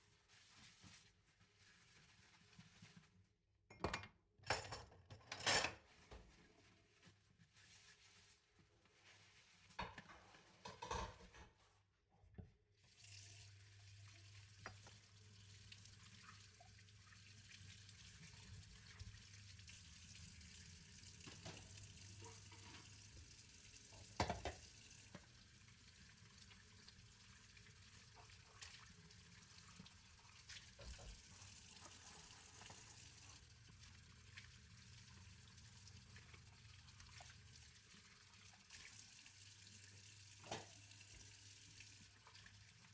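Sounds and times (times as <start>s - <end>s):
tap running into a sink: 14.6s - 15.0s, 21.1s - 25.4s, 30.5s - 33.0s, 40.3s - 41.3s.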